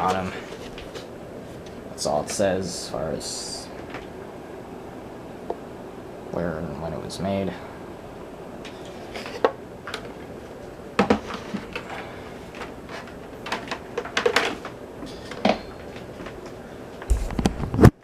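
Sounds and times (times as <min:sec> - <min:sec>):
clatter and thump: 0:17.1 - 0:18.0.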